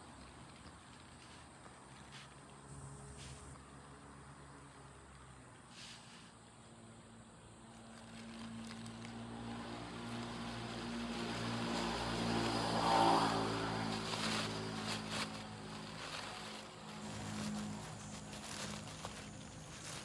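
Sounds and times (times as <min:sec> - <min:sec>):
vehicle passing by: 0:08.0 - 0:20.0.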